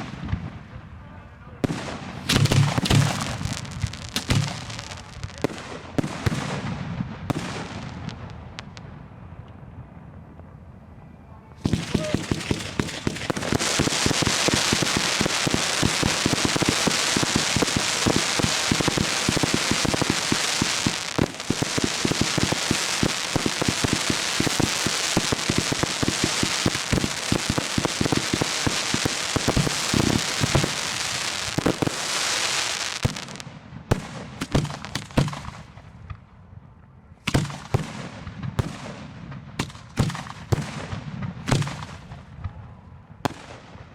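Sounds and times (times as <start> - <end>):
fireworks bangs and crackling: 0.0 - 9.2, 11.6 - 36.3, 37.2 - 42.6, 43.2 - 43.9.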